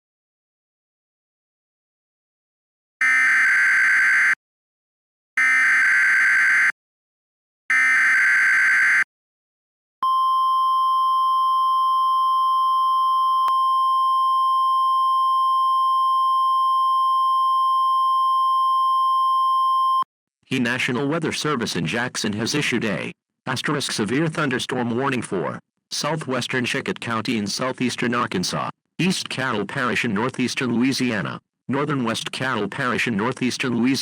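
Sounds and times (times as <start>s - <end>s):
steady high alarm tone: 3.0s - 4.4s, 5.4s - 6.7s, 7.7s - 9.1s.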